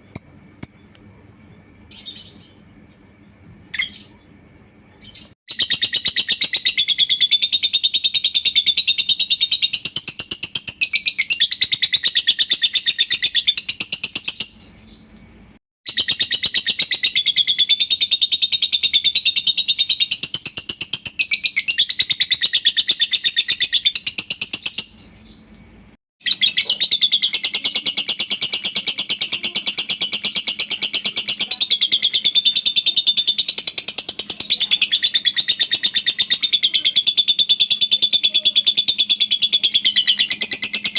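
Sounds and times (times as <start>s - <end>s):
lovebird chattering trill: 5.1s - 14.6s, 26.2s - 40.9s.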